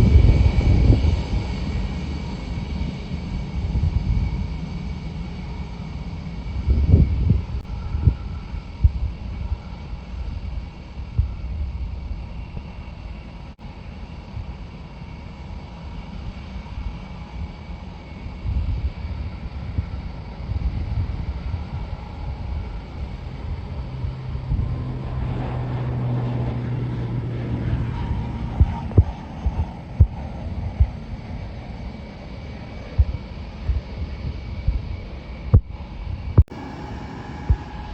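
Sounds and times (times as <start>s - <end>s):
distant jet engines rumbling: 0.0s - 37.9s
steady low hum: 0.0s - 37.9s
wind buffeting microphone: 0.0s - 37.9s
rising engine noise: 18.2s - 37.9s.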